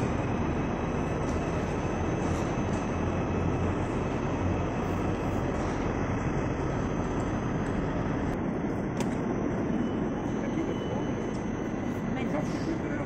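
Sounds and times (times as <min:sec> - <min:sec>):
faint high whine: 0:00.0 - 0:13.0
train hum and rumble: 0:00.0 - 0:13.0.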